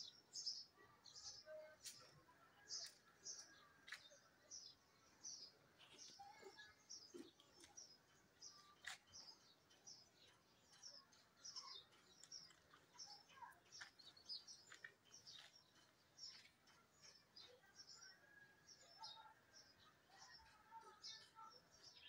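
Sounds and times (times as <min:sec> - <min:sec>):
birds chirping faintly: 0:00.0 - 0:22.0.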